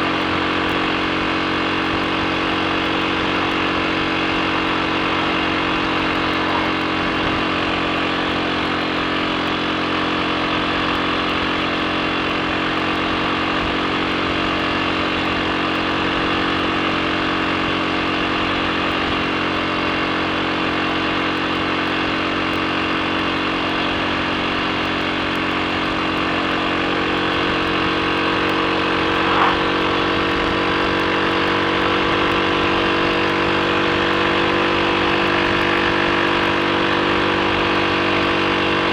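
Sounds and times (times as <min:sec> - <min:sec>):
motorcycle engine running: 0:00.0 - 0:38.9
short sharp sound: 0:28.7 - 0:30.2.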